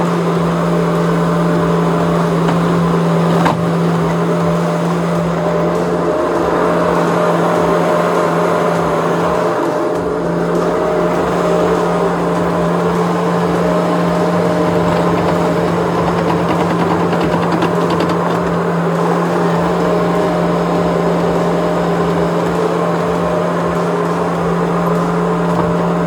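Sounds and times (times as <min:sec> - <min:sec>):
loader engine running: 0:00.0 - 0:26.0.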